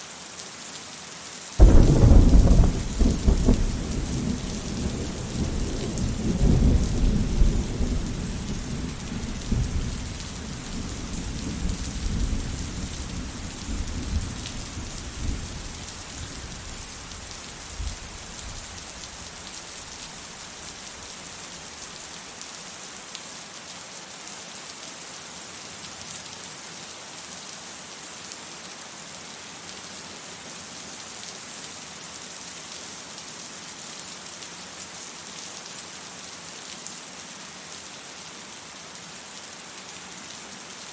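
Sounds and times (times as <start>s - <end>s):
steady rain: 0.0s - 40.9s
thunder rumbling: 1.6s - 18.0s.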